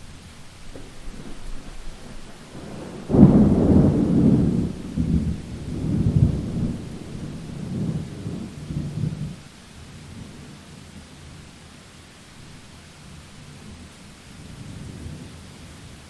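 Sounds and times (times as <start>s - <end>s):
steady rain: 0.0s - 16.0s
thunder clap and rumble: 0.7s - 9.4s.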